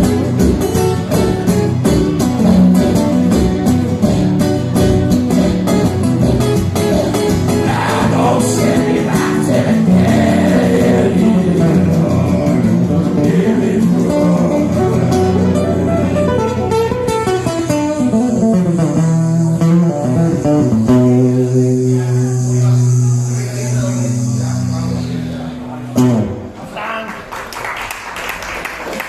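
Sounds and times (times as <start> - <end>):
guitar music: 0.0 - 26.6
person singing: 7.5 - 16.7.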